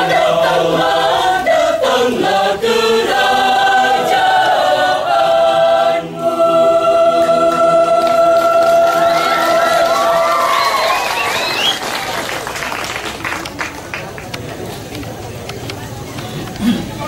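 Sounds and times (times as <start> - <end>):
church choir singing: 0.0 - 10.3.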